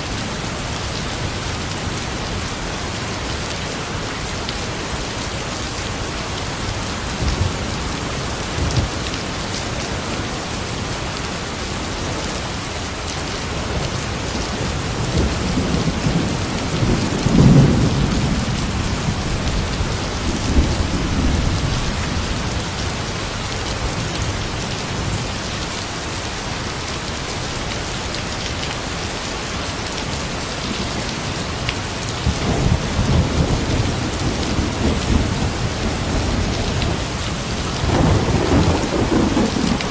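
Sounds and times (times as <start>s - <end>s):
rain falling: 0.0s - 39.9s
thunder rumbling: 14.7s - 23.3s, 32.2s - 39.9s.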